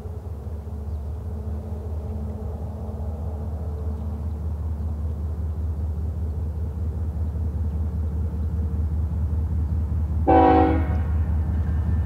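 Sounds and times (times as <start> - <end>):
freight train low rumble: 0.0 - 12.0
locomotive air horn blast: 10.2 - 11.1.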